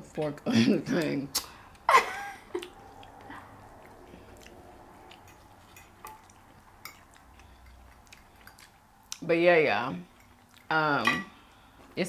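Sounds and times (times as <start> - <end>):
soft chewing: 2.5 - 9.3, 10.0 - 10.8.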